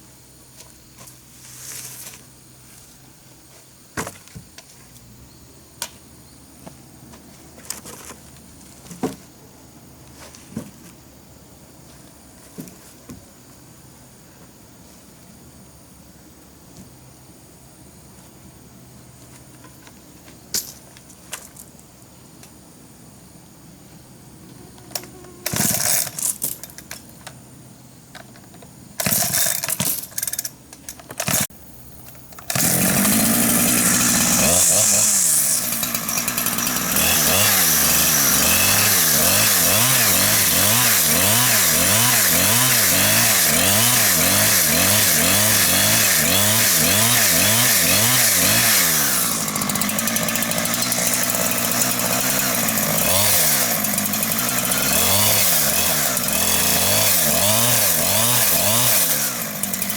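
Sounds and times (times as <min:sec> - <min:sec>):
chainsaw cutting wood: 0:24.9 - 0:26.5, 0:29.0 - 0:30.4, 0:31.2 - 0:31.5, 0:32.2 - 0:59.9.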